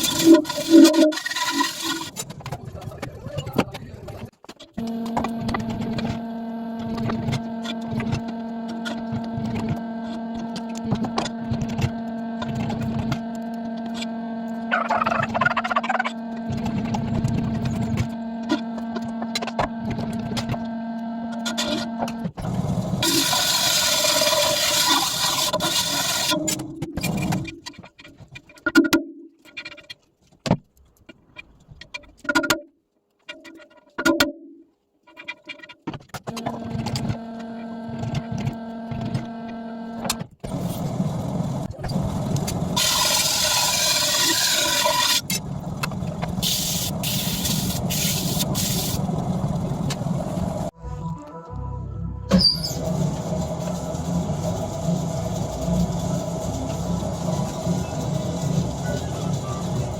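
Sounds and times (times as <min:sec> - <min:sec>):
electric motor humming: 0:00.0 - 0:02.2, 0:04.8 - 0:26.6, 0:36.3 - 0:50.7, 0:52.8 - 0:59.9.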